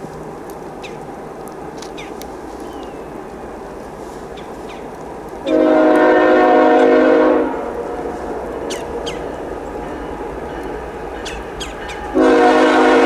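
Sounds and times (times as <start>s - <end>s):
locomotive air horn blast: 5.4s - 11.0s, 11.8s - 13.0s
steady rushing background: 7.4s - 13.0s
birds chirping: 7.8s - 13.0s.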